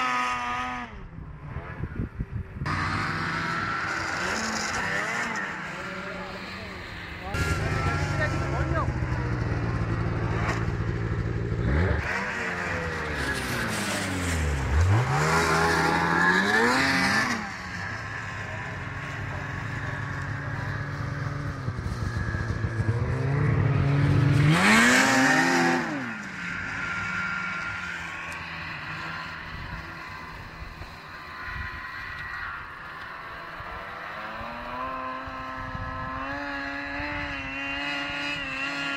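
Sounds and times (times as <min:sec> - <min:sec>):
snowmobile engine revving: 0:00.0 - 0:38.9.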